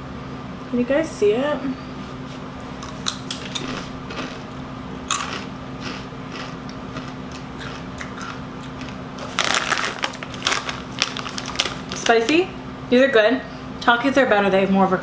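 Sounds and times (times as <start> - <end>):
chewing crunchy chips: 2.8 - 12.4.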